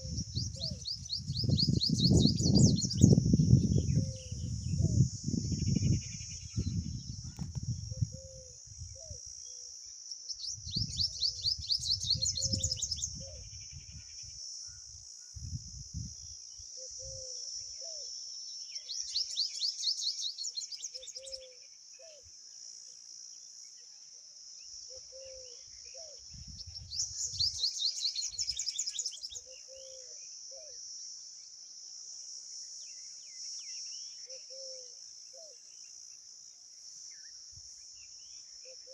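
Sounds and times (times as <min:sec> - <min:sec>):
bird chirping: 0:00.0 - 0:14.9, 0:16.8 - 0:22.3, 0:24.9 - 0:30.8.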